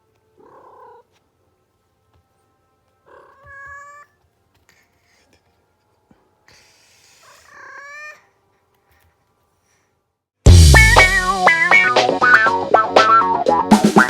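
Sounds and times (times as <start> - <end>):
cat yowling: 3.1 - 4.2, 7.2 - 8.3.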